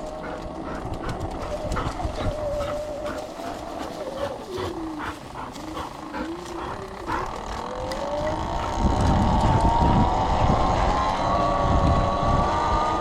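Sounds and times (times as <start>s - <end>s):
wind buffeting microphone: 0.0s - 13.0s
electric motorbike motor whining: 3.4s - 13.0s.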